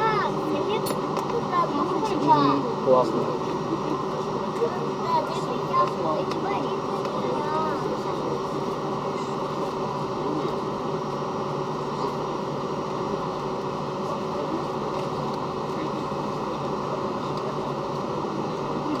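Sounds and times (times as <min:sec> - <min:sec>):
airliner cabin engine drone: 0:00.0 - 0:19.0.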